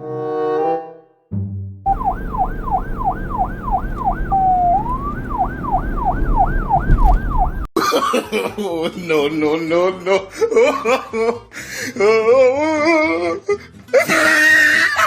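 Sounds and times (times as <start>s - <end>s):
electronic police siren: 1.9s - 7.7s
low background rumble: 1.9s - 7.7s.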